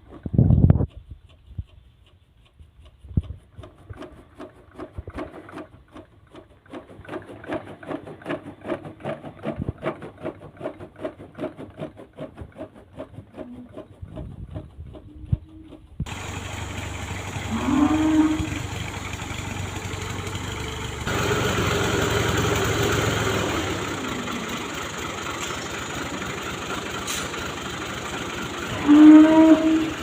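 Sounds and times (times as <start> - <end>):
machine clattering rhythmically: 3.6 - 14.9, 18.6 - 28.8.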